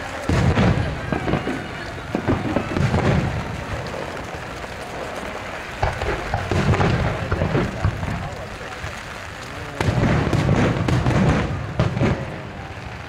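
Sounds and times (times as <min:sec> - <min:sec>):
fireworks booming: 0:00.0 - 0:13.0
rain hiss: 0:00.0 - 0:13.0.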